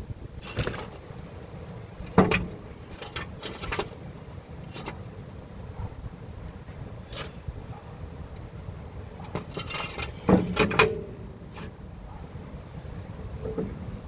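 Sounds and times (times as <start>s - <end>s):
tools and metal parts clanking: 2.0s - 4.0s, 9.2s - 11.8s.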